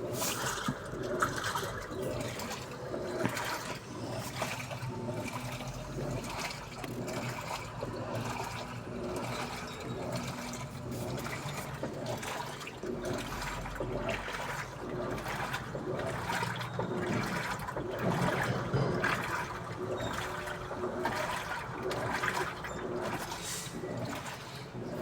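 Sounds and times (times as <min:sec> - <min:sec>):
water splashing in washing machine: 0:00.0 - 0:25.0.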